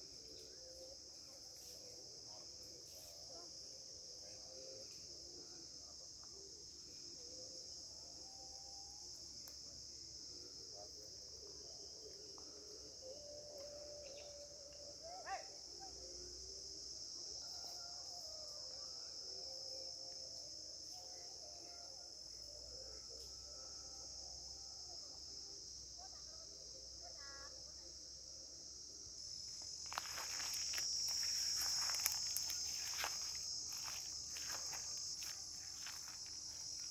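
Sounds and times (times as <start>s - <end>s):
insect chorus drone: 0.0s - 36.9s.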